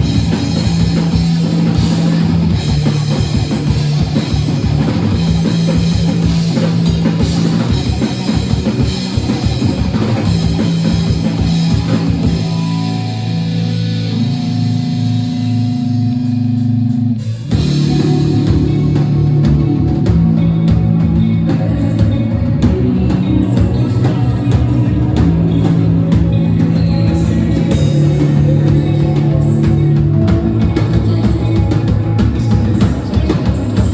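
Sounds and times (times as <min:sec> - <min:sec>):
rock band playing live: 0:00.0 - 0:33.9.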